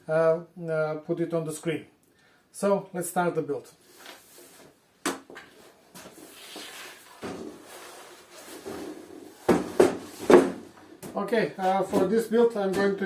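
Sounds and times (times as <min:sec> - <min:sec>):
scraping and rustling: 0:05.4 - 0:10.6
wooden boards knocking: 0:09.5 - 0:10.7.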